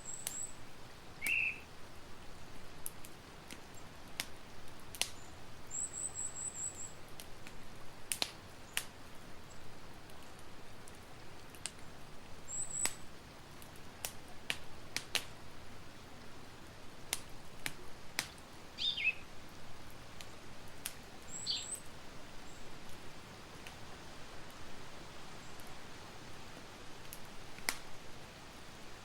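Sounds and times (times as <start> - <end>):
wood campfire crackling: 0.0 - 29.0
high-pitched bird chirps: 1.2 - 1.6, 18.8 - 19.2, 21.3 - 21.8.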